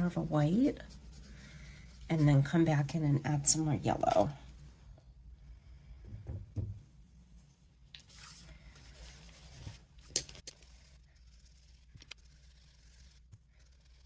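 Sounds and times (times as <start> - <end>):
soft rubbing on cardstock: 8.1 - 9.9, 10.6 - 14.0.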